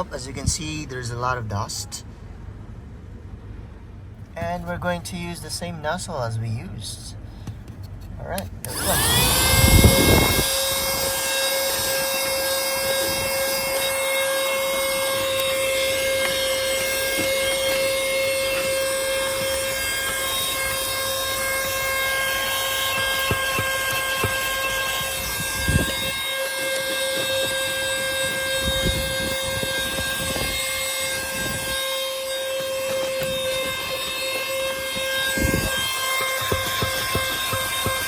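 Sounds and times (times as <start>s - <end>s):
handheld vacuum cleaner running: 8.6s - 38.0s
vacuum nozzle knocking on floor: 35.6s - 38.0s.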